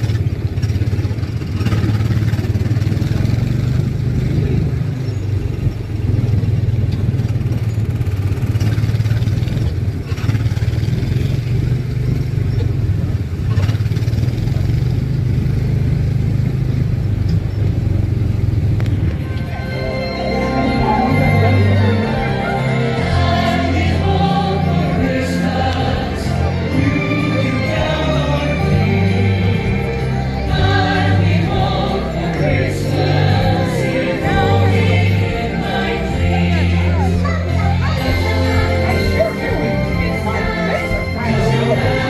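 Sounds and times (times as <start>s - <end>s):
small engine droning: 0.0s - 42.0s
background music: 18.9s - 42.0s.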